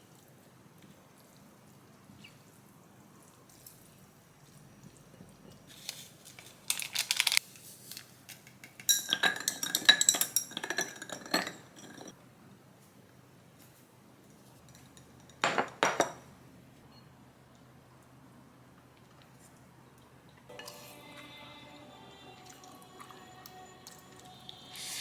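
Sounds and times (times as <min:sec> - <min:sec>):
dishes and cutlery clinking: 0:08.5 - 0:12.2, 0:14.6 - 0:17.0, 0:20.5 - 0:21.0.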